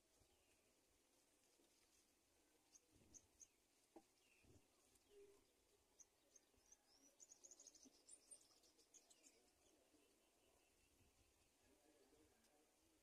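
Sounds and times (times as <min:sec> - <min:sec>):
faint high bird chirps: 0:02.5 - 0:12.6.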